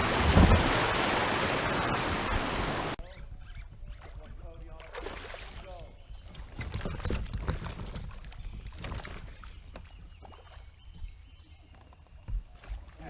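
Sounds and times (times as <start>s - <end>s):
water noise: 0.0s - 11.6s.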